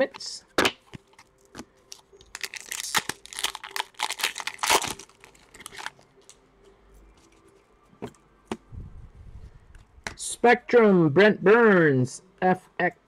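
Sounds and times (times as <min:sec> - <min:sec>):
wrapper crinkling: 0:01.0 - 0:06.4.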